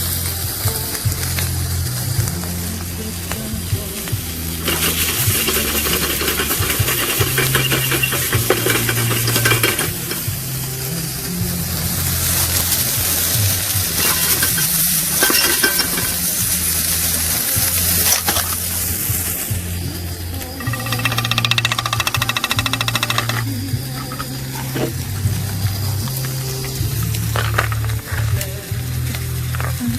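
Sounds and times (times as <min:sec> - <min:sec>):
food sizzling in a pan: 0:00.0 - 0:29.9
utensil stirring and clinking: 0:04.6 - 0:10.6, 0:12.4 - 0:19.3, 0:20.3 - 0:25.0.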